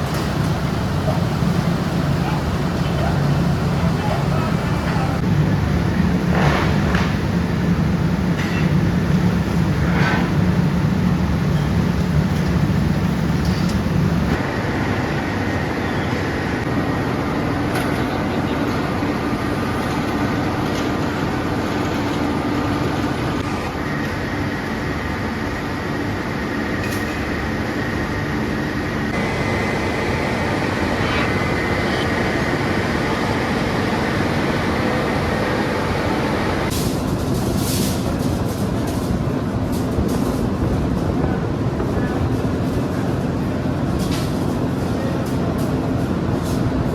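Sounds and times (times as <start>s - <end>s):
heavy low hum: 0.0s - 16.7s
factory machinery din: 0.0s - 46.9s.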